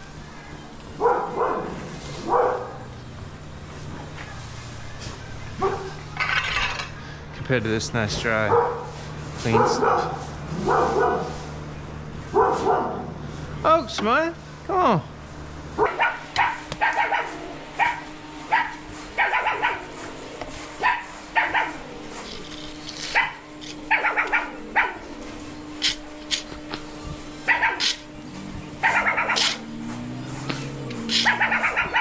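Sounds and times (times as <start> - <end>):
dog barking: 1.0 - 2.9, 5.6 - 6.0, 8.5 - 11.4, 12.3 - 13.2, 15.8 - 26.5, 27.4 - 28.1, 28.7 - 30.0, 31.0 - 32.0.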